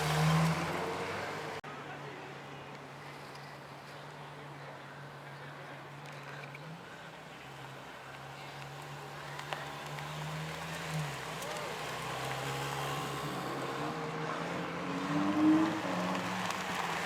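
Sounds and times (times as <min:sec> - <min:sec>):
car engine humming: 0:05.0 - 0:17.0.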